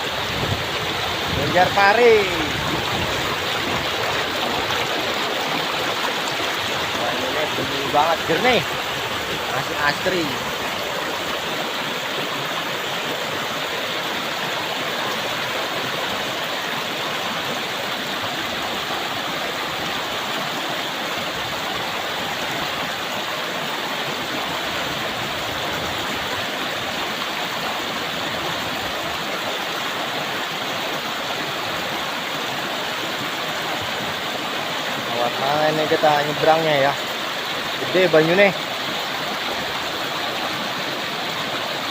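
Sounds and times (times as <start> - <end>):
water rushing over stones: 0.0 - 41.9.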